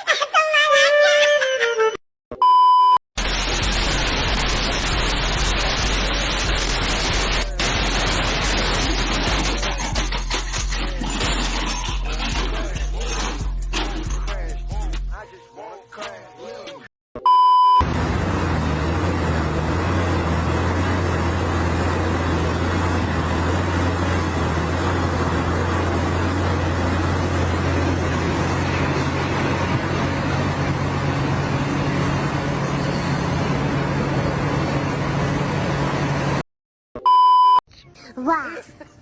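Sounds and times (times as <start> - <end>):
vehicle engine and road noise: 3.2 - 14.9, 17.7 - 36.4.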